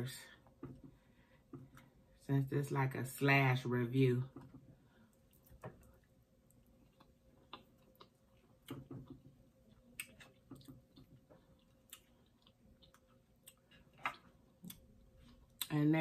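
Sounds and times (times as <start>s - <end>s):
chewing soft food: 4.9s - 15.8s.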